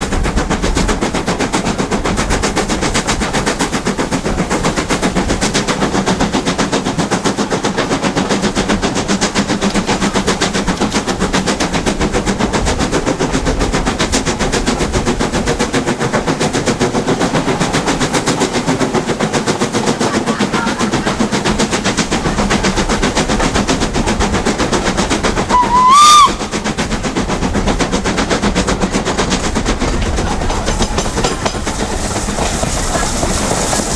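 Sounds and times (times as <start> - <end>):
steam locomotive exhaust beats: 0.0 - 33.9
steam whistle blast: 25.5 - 26.6.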